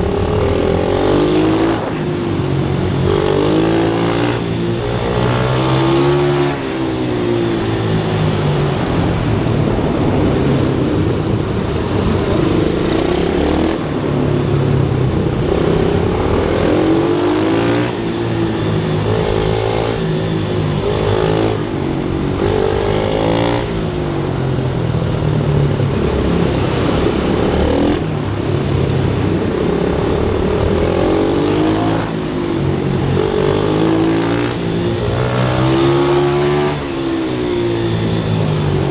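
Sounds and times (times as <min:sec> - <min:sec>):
motorbike engine revving: 0:00.0 - 0:38.9.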